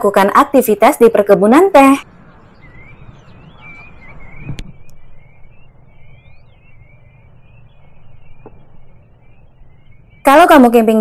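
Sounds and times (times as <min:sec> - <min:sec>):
birds singing: 0:01.8 - 0:11.0
rising whistle: 0:02.6 - 0:10.6.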